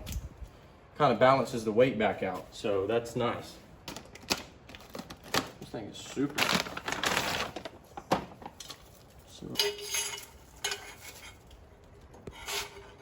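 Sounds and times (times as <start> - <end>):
metal parts clanking: 9.4 - 11.4.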